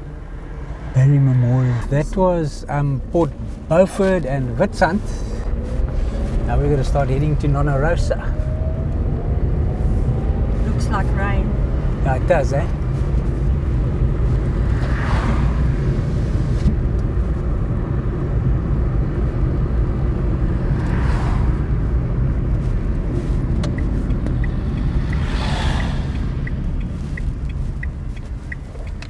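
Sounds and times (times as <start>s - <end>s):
car road noise rumble: 0.0s - 29.0s
vehicles passing whooshes: 0.0s - 29.0s
light regular ticking: 23.4s - 29.0s.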